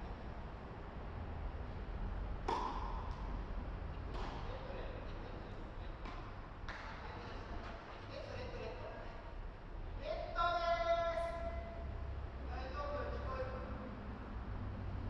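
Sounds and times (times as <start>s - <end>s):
tennis ball hits: 2.4s - 4.6s.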